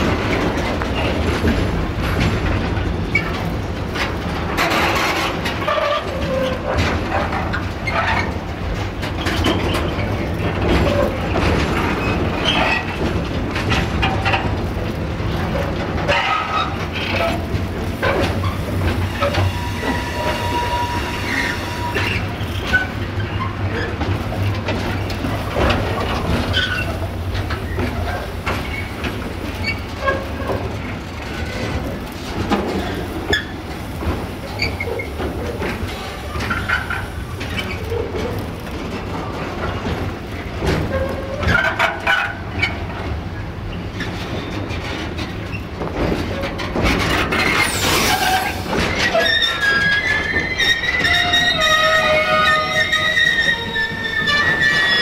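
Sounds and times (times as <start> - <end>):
freight wagons rumbling: 0.0 - 55.0
wheels clacking over rail joints: 0.0 - 55.0
metallic wheel squeals: 18.4 - 23.9, 47.5 - 55.0.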